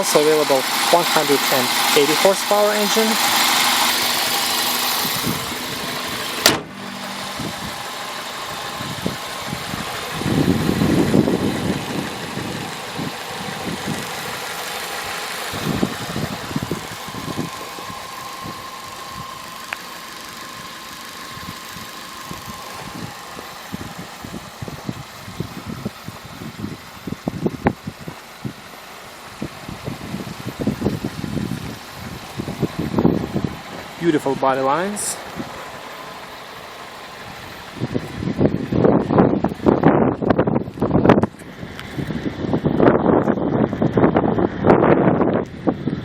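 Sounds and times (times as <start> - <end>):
car engine idling: 0.0 - 46.0
sharp bang: 5.9 - 9.3.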